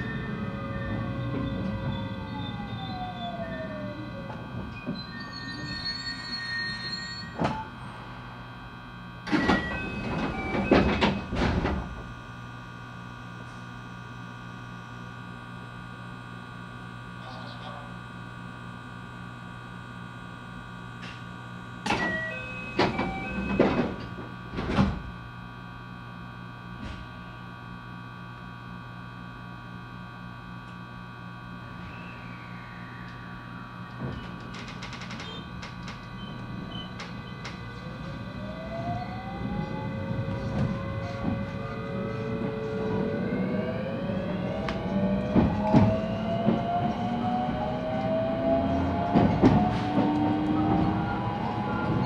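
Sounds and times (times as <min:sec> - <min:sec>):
electrical hum of train: 0:00.0 - 0:52.0
electric train motors whining: 0:21.8 - 0:24.4, 0:31.4 - 0:52.0.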